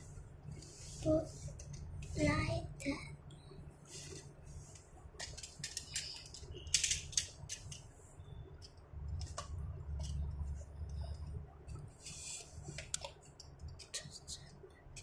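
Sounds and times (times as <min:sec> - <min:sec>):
toy handling clicks: 0:05.2 - 0:07.9.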